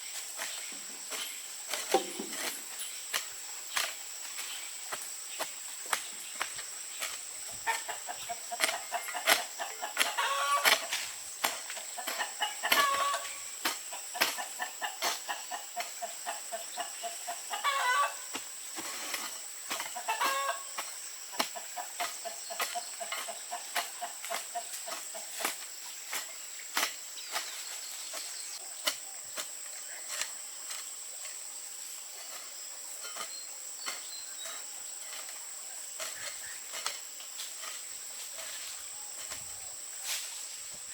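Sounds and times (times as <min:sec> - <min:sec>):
chickens clucking: 0:07.0 - 0:25.6
chickens cackling: 0:07.6 - 0:25.6.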